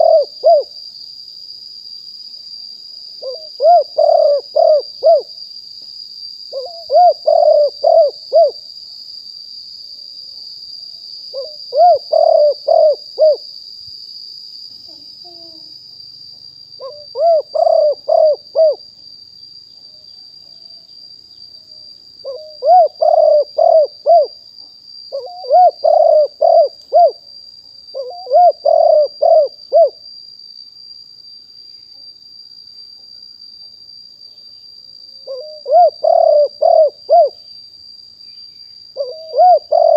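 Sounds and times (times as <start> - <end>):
dove cooing: 0.0 - 0.7, 3.2 - 5.3, 6.5 - 8.6, 11.3 - 13.4, 16.8 - 18.8, 22.2 - 24.4, 25.1 - 27.2, 27.9 - 30.0, 35.3 - 37.4, 39.0 - 39.9.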